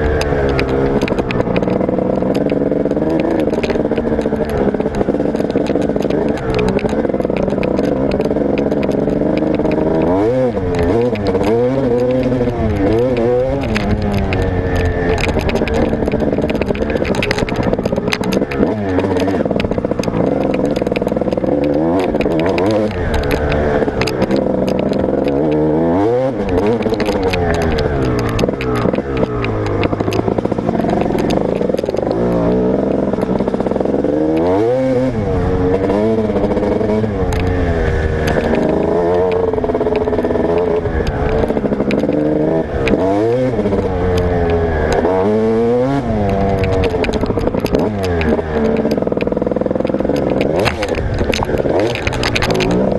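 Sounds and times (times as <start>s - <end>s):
bike clattering: 0.0s - 52.9s
motocross bike engine revving: 0.0s - 52.9s.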